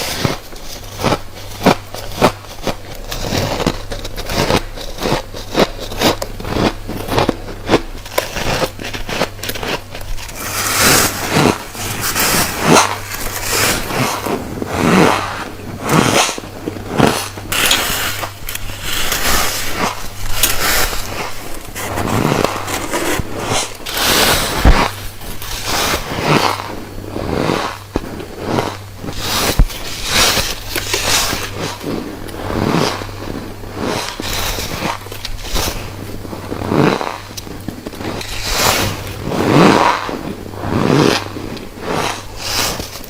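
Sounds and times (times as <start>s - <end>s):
frost being chewed: 0.1s - 43.0s.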